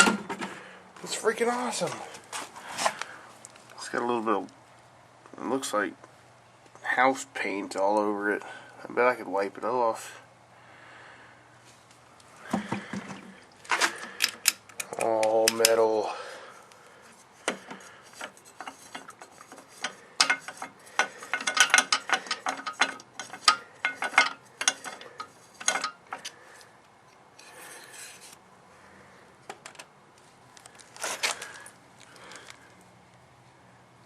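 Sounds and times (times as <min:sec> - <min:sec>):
hands rubbing metal chainsaw: 0:17.1 - 0:26.4, 0:27.4 - 0:28.4.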